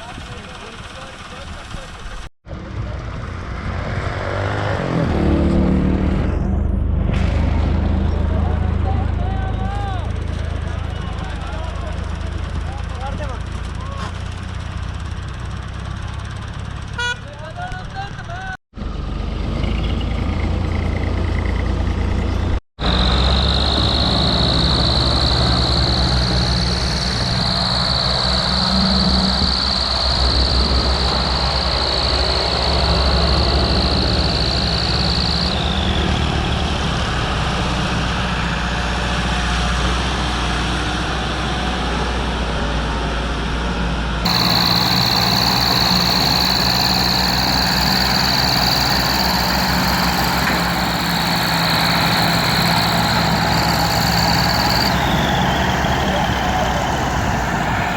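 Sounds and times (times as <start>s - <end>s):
tractor diesel engine running: 0.0s - 3.1s, 6.9s - 19.2s, 20.2s - 37.4s, 44.2s - 57.9s
high whine: 22.8s - 36.3s, 44.2s - 57.9s.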